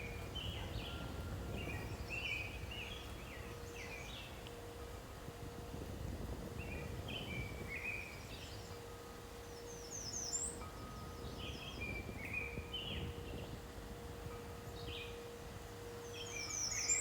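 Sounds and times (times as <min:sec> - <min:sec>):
songbirds singing: 0:16.1 - 0:17.0.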